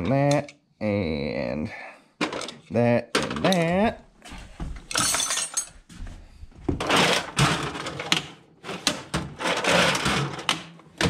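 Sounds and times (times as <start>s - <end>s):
metal tools clinking: 4.9s - 5.8s.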